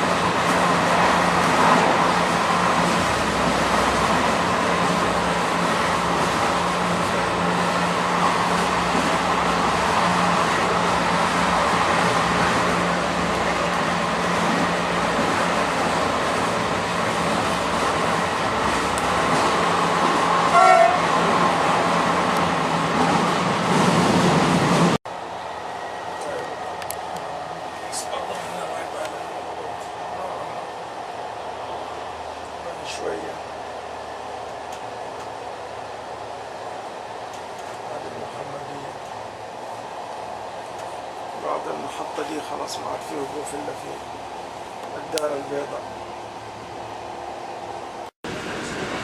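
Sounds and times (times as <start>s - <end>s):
train rumbling and hissing: 0.0s - 49.0s
train horn toot: 20.5s - 21.1s.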